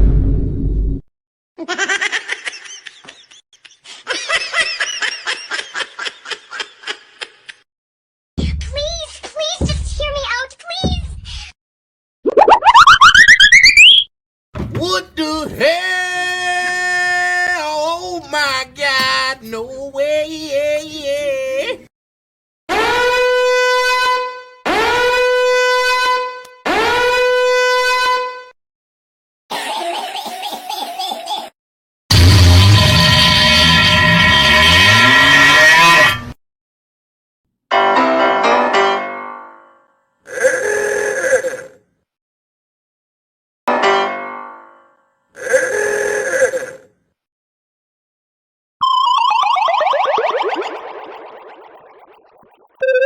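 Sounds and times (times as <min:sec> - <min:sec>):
high-pitched laughter: 0:01.6 - 0:07.6, 0:29.5 - 0:31.5.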